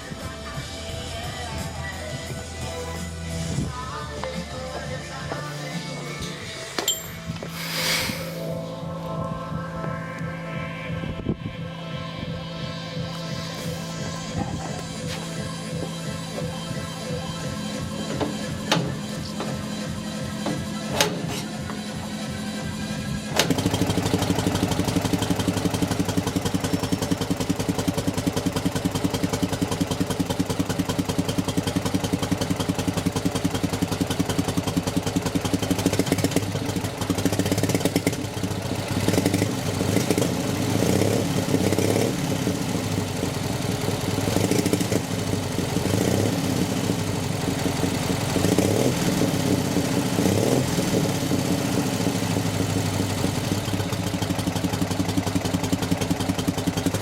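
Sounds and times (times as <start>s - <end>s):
motorcycle engine idling: 11.6s - 57.0s.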